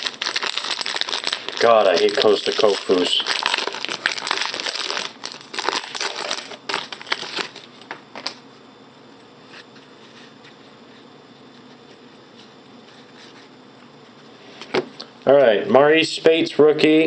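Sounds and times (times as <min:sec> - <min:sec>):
wrapper crinkling and tearing: 0:00.0 - 0:08.3
cards being handled: 0:01.2 - 0:04.6.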